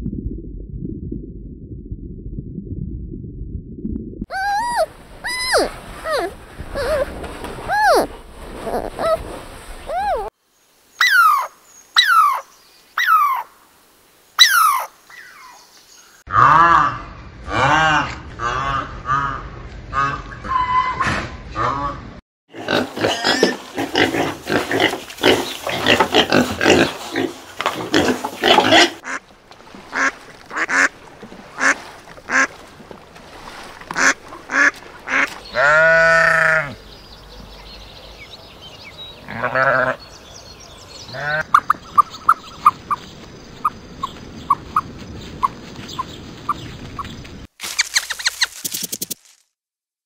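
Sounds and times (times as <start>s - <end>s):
piglets grunting: 4.3s - 7.1s, 22.5s - 29.0s
sheep bleating: 35.5s - 36.8s
ostrich chicks peeping: 41.1s - 47.3s.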